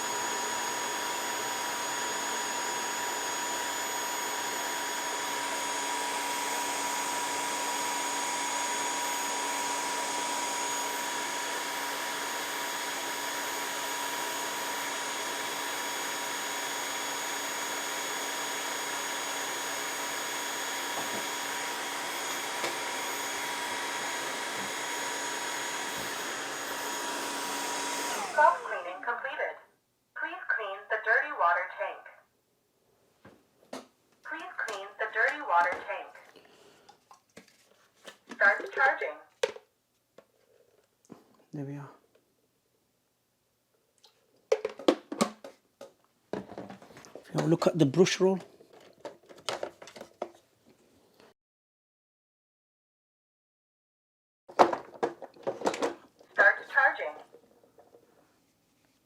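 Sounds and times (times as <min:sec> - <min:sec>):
vacuum suction motor whining: 0:00.0 - 0:29.0.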